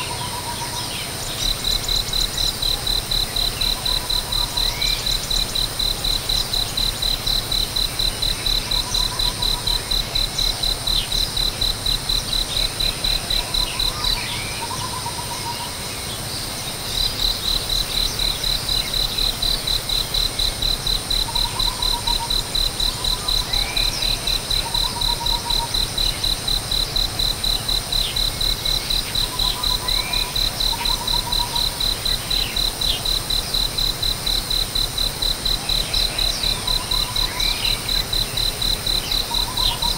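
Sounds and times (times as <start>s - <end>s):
insect chirping: 0.0s - 39.9s
faint bird calls: 21.0s - 26.9s, 27.8s - 33.2s, 35.6s - 39.9s.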